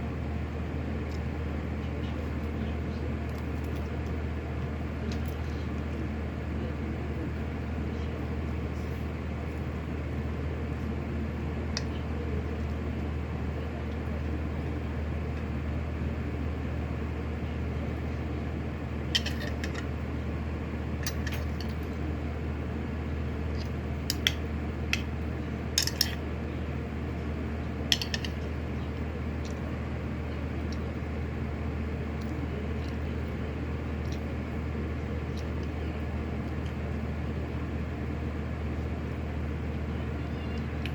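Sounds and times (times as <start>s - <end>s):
electric fan humming: 0.0s - 40.9s
utensils clinking against bowl: 25.8s - 26.2s.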